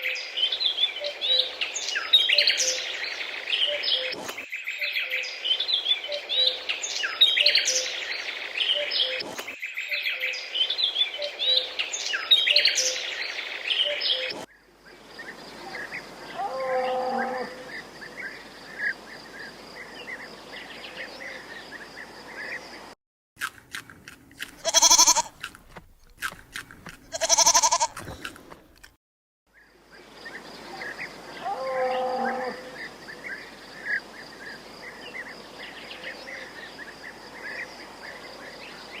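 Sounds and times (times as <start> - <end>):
birds singing: 0.0 - 22.9, 29.5 - 39.0
sheep or goat bleating: 24.6 - 25.4, 27.1 - 28.2.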